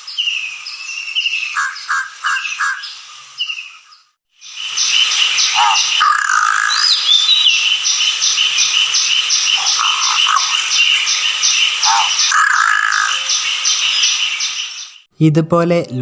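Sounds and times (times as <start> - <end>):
bird whistle: 1.2 - 15.0
crow harsh calls: 5.4 - 7.4, 9.3 - 11.1, 11.7 - 13.4
high pulsing chorus: 9.3 - 11.1.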